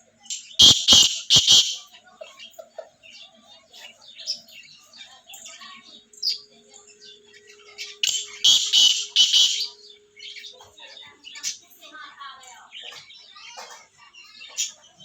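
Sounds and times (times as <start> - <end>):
cage birds chirping: 0.0 - 15.0
loud harsh bird call: 0.3 - 2.1, 7.5 - 10.5.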